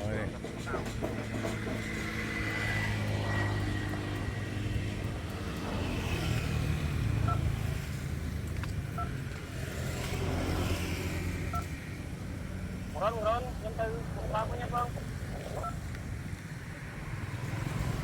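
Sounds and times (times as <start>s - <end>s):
short electronic beeps: 7.2s - 7.5s, 9.0s - 9.2s, 15.6s - 15.8s.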